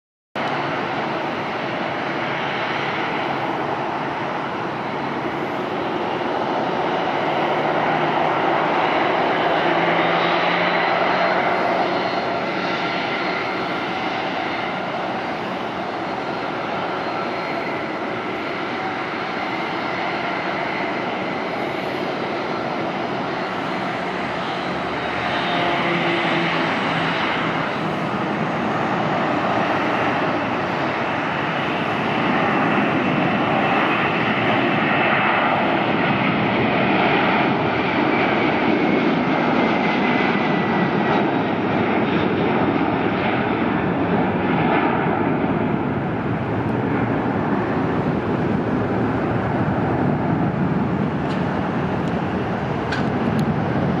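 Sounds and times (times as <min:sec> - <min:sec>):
jet engines roaring with whine: 0:00.4 - 0:54.0.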